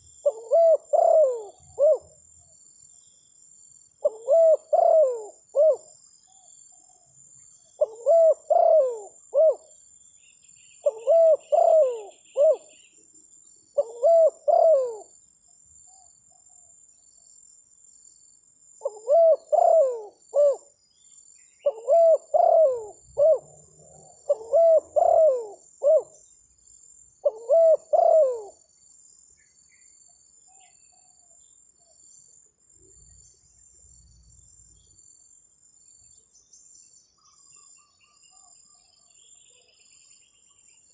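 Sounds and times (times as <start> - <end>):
dove cooing: 0.0 - 2.2, 4.0 - 5.8, 7.8 - 9.7, 10.8 - 12.7, 13.8 - 15.1, 18.8 - 20.7, 21.6 - 26.2, 27.2 - 28.6.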